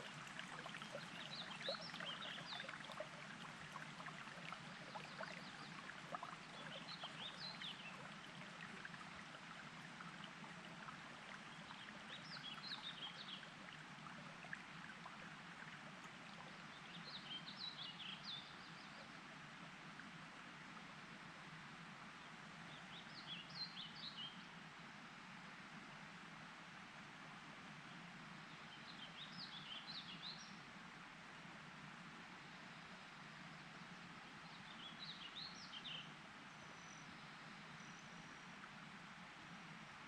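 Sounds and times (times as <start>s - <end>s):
water trickling and burbling: 0.0s - 18.1s.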